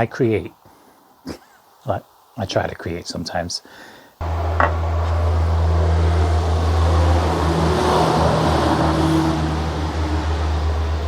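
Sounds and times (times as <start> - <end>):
machine humming: 4.2 - 11.0.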